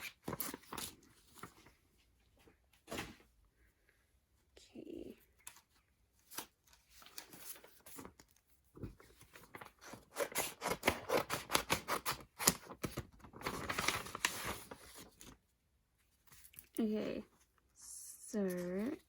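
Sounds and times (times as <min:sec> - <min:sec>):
packaging crackling and rustling: 0:09.0 - 0:15.4.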